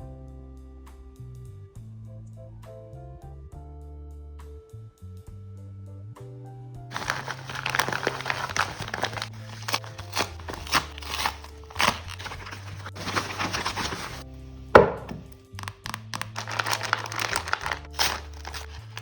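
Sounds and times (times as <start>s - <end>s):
background music: 6.9s - 19.0s
plastic packaging crinkling: 6.9s - 19.0s.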